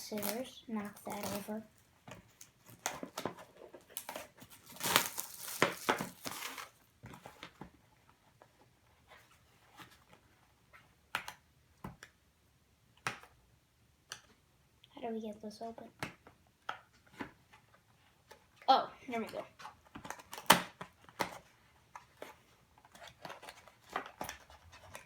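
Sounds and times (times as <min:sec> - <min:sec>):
plastic wrapping crinkling: 0:00.0 - 0:06.8.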